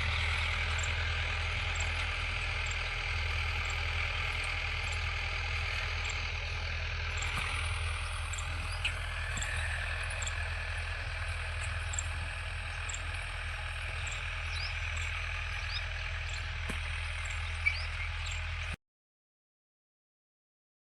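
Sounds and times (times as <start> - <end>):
tractor engine running: 0.0 - 18.8.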